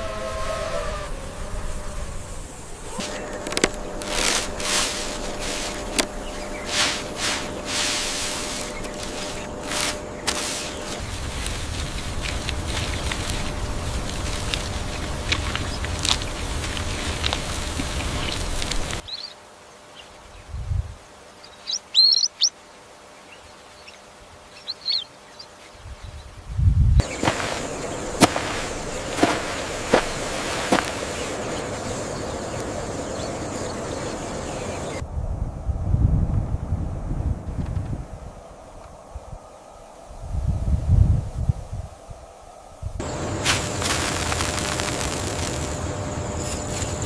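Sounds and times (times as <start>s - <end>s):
hissing whooshes: 0.0s - 12.2s, 13.2s - 19.1s
birds chirping: 0.0s - 20.5s, 21.3s - 26.4s, 27.0s - 35.0s
loud steady noise: 1.1s - 19.1s
sharp crack: 27.0s - 31.4s.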